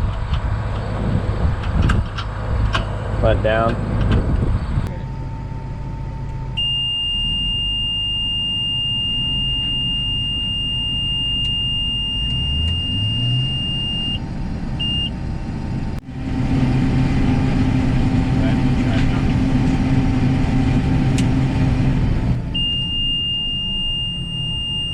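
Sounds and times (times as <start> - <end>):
farm machine engine running: 0.0 - 12.8, 13.6 - 24.9
high warning beep: 5.1 - 14.2, 14.8 - 15.2, 22.5 - 24.9.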